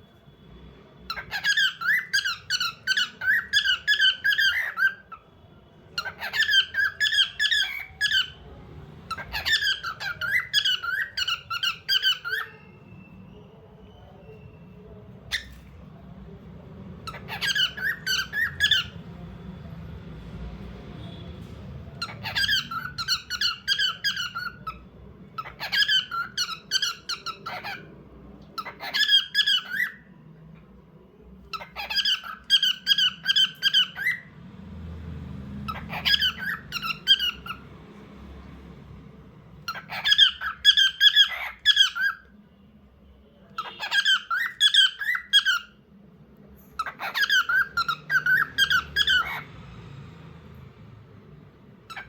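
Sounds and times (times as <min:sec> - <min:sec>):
cockatiel chirping: 0:01.1 - 0:05.2, 0:06.0 - 0:08.4, 0:09.1 - 0:13.4, 0:15.3 - 0:15.7, 0:17.0 - 0:19.0, 0:22.0 - 0:24.8, 0:25.4 - 0:27.9, 0:28.6 - 0:30.0, 0:31.5 - 0:34.3, 0:35.7 - 0:37.6, 0:39.6 - 0:42.3, 0:43.6 - 0:45.8, 0:46.8 - 0:49.5.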